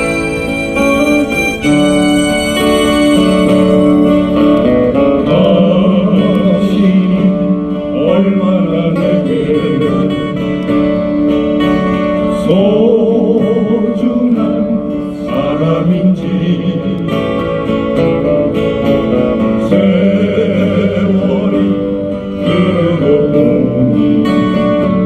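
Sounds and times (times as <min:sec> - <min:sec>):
ballad backing track with guitar: 0:00.0 - 0:25.0
person singing with vibrato: 0:12.3 - 0:17.6, 0:19.4 - 0:25.0.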